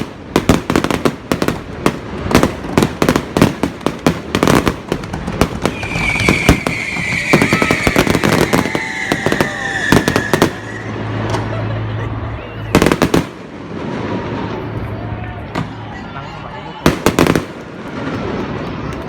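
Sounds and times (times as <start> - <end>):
fireworks bangs and pops: 0.0 - 11.5, 12.7 - 14.8, 16.8 - 19.0
falling firework whistle: 5.5 - 11.6.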